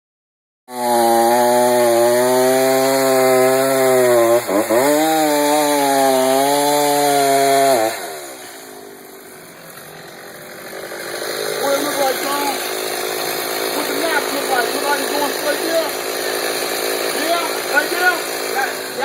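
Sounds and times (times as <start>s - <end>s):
chainsaw running at high revs: 0.7s - 19.0s.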